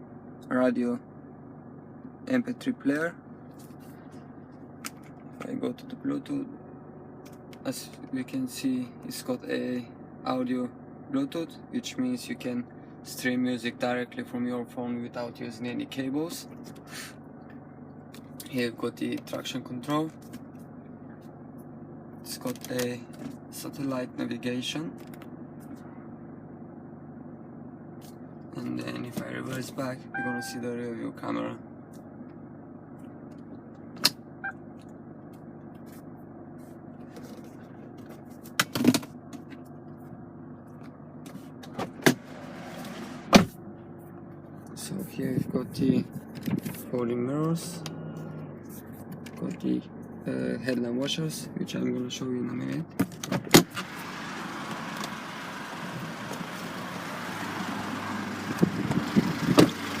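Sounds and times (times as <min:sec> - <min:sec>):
diesel engine idling: 0:00.0 - 0:28.5, 0:42.2 - 0:52.5, 0:53.6 - 1:00.0.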